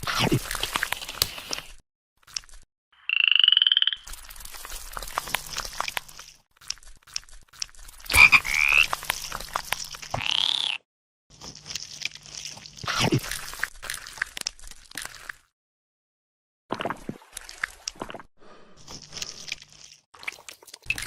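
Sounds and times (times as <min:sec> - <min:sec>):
crisp clicks and crunches: 0:00.0 - 0:02.7, 0:04.1 - 0:10.2, 0:11.3 - 0:15.5
pulsing croak-like call: 0:03.0 - 0:04.1, 0:08.1 - 0:09.0, 0:10.1 - 0:10.8.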